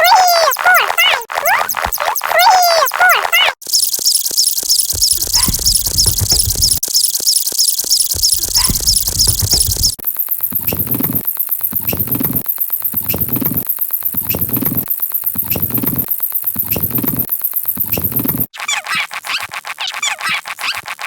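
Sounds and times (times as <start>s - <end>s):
high squeaky cartoon chirps: 0.0s - 10.0s, 15.4s - 20.8s
fast ticking: 3.6s - 18.5s
low pulses loop: 3.7s - 7.2s, 7.8s - 10.0s.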